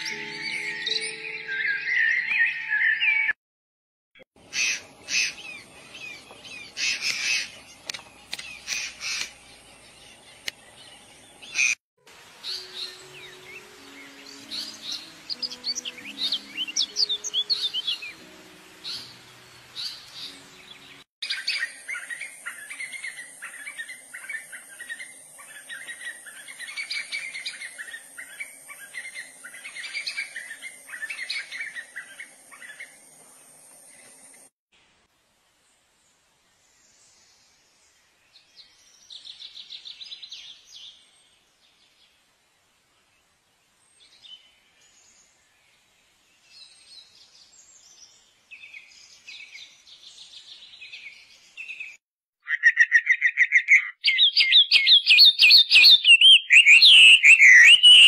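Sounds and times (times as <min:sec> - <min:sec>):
soft low musical notes: 0:00.0 - 0:02.9, 0:12.0 - 0:21.0
bird calls and chirps: 0:04.4 - 0:11.8, 0:12.4 - 0:34.5, 0:43.8 - 0:58.0.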